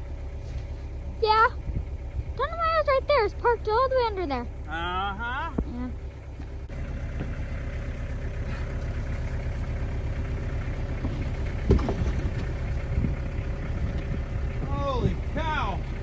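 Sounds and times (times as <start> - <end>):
vehicle engine running: 0.0 - 16.0
thump: 11.6 - 12.3.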